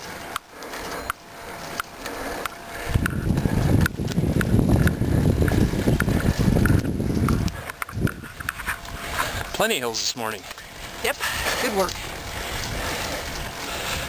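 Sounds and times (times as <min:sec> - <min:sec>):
wind buffeting microphone: 0:02.6 - 0:09.6, 0:10.6 - 0:14.0.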